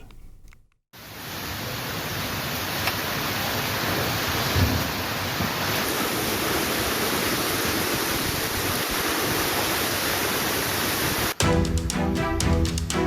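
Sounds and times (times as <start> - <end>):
heavy rain pouring: 1.0 - 11.4
music: 11.4 - 13.0.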